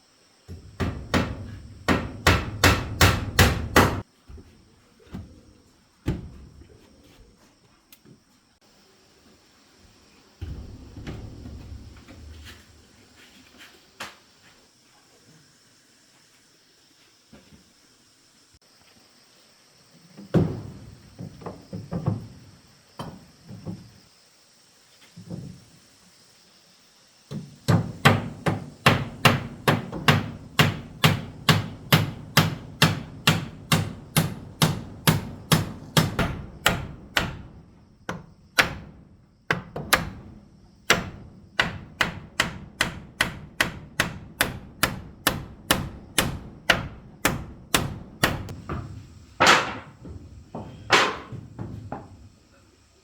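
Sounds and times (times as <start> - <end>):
hammer striking: 0.8 - 4.0, 28.0 - 37.5, 40.9 - 48.8.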